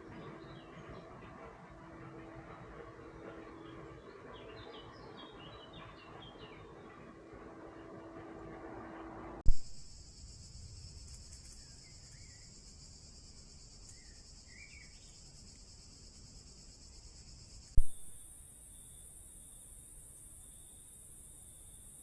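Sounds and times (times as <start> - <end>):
faint bird chirps: 9.5 - 21.8
insects chirping chorus: 9.5 - 22.0.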